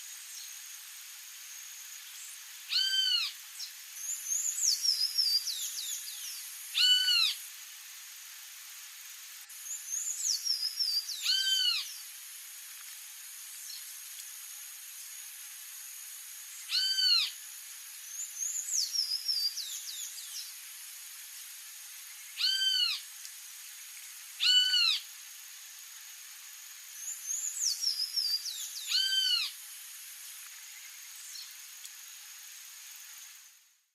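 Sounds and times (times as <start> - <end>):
steady high-pitched hiss: 0.0 - 33.9
songbird calls: 2.0 - 7.4, 9.6 - 12.1, 16.6 - 17.4, 18.0 - 20.6, 22.0 - 23.0, 24.4 - 25.1, 27.0 - 29.6.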